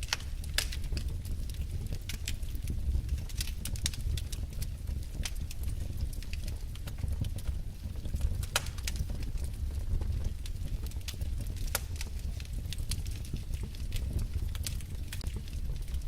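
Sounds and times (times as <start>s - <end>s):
fire rumbling: 0.0s - 16.0s
logs crackling and popping: 0.0s - 16.0s.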